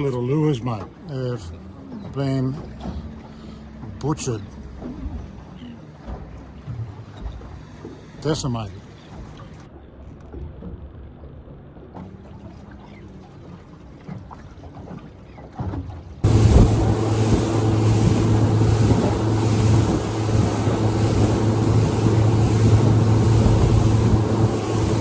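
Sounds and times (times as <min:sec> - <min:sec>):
outboard motor droning: 0:00.0 - 0:09.8, 0:11.6 - 0:25.0
water rushing past hull: 0:12.0 - 0:25.0
low hum: 0:16.2 - 0:25.0
wind buffeting microphone: 0:16.2 - 0:25.0.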